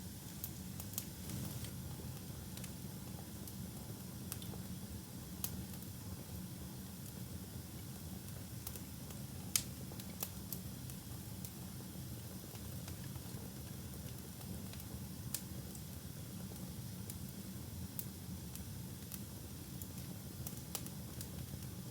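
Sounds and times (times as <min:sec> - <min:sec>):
fire crackling and popping: 0:00.3 - 0:03.6, 0:08.0 - 0:21.8.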